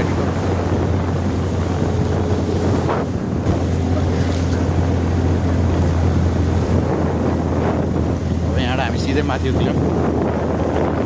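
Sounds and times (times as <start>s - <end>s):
motorcycle engine hum: 0.0s - 8.9s
wind buffeting microphone: 0.0s - 11.0s.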